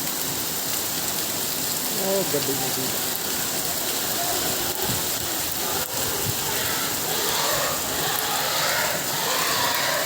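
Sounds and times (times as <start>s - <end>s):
heavy rain on hard surfaces: 0.0s - 10.0s.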